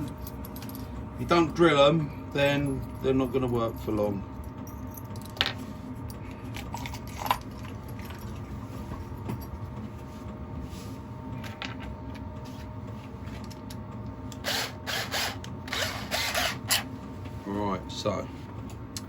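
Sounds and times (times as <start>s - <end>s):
power tool motor humming: 14.4s - 16.9s.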